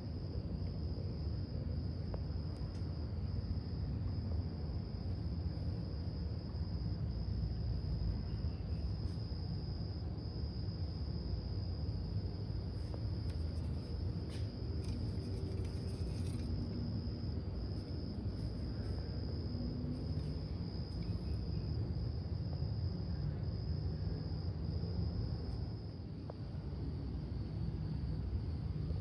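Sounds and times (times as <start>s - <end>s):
high-pitched insect trill: 7.4s - 9.8s, 10.5s - 24.5s.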